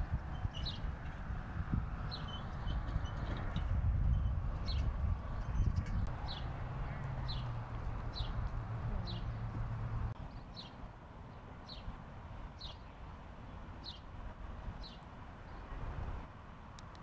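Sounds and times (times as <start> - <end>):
steady outdoor noise: 0.0 - 17.0
bird chirping: 7.2 - 8.4.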